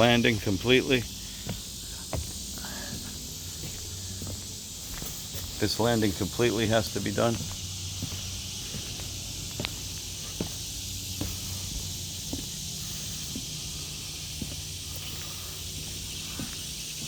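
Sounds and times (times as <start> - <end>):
footsteps on wooden deck: 0.0 - 17.0
steady high hiss: 0.0 - 17.0.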